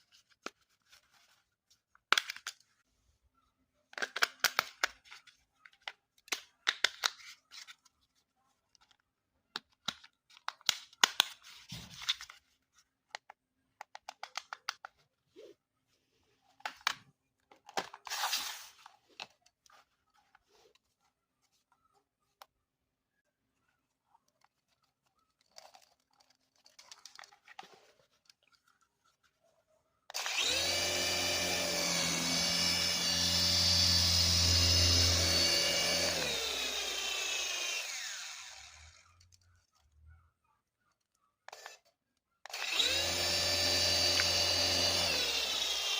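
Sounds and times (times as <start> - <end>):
packaging crinkling and tearing: 24.4 - 29.4
toy helicopter motor whine: 30.1 - 39.1, 42.5 - 45.9.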